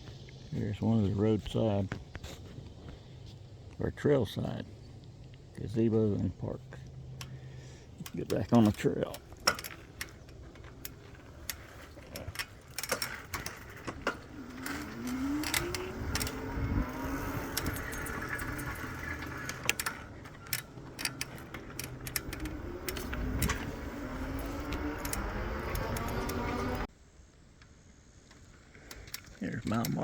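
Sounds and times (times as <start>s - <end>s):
bike clicks and rattles: 0.0s - 26.9s, 28.1s - 30.0s
electric motor whining: 8.1s - 26.9s.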